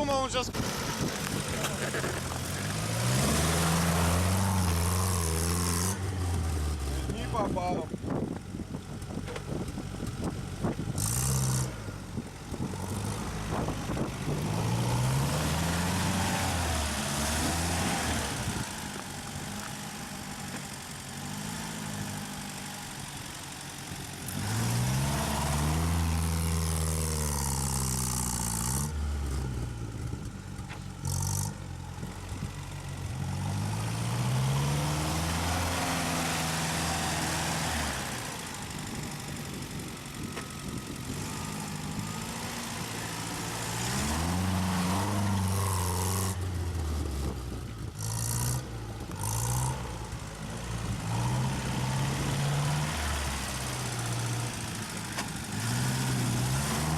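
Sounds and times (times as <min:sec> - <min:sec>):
engine revving hard: 0:55.4 - 0:56.9.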